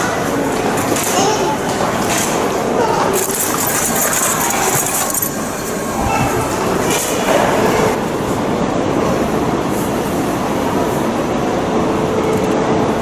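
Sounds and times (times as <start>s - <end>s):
train rushing and rumbling: 0.0s - 13.0s.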